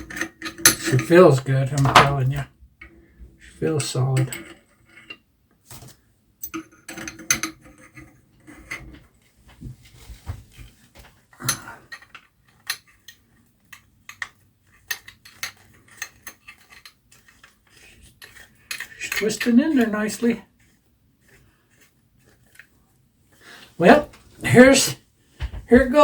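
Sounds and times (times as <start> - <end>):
metal cap screwing clicks: 11.4 - 22.8.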